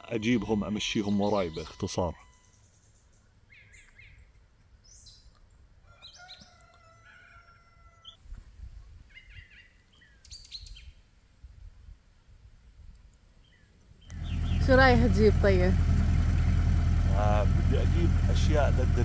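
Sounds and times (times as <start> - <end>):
faint bird chirping: 0.2 - 6.7, 13.4 - 15.0
low rumble: 14.1 - 19.0.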